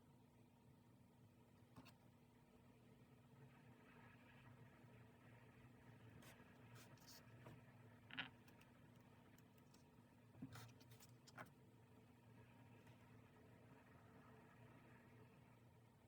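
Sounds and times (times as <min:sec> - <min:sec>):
faint paper scratches and taps: 0:01.8 - 0:02.0, 0:09.4 - 0:11.6.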